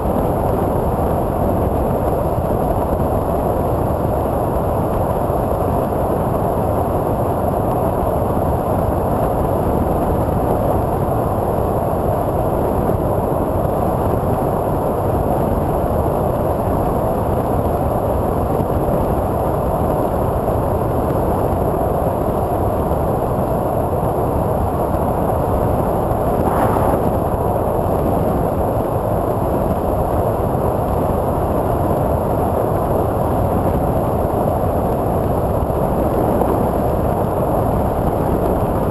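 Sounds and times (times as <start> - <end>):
propeller noise: 25.4 - 28.7
wind rushing: 26.1 - 28.0.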